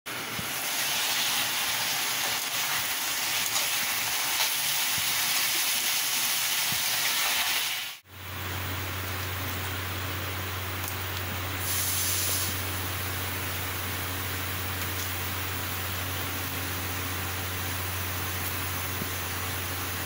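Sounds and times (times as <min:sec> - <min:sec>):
beans sizzling in a pan: 0:00.2 - 0:08.1, 0:11.6 - 0:15.4.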